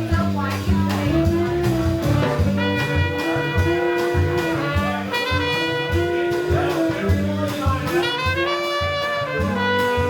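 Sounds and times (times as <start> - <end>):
jazz band playing: 0.0 - 10.0
horn holding long note: 1.2 - 7.2, 8.0 - 10.0.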